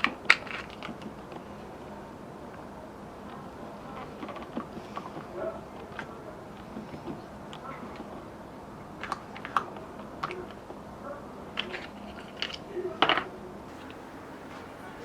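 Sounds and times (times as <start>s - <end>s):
steady low background noise: 0.0s - 15.0s.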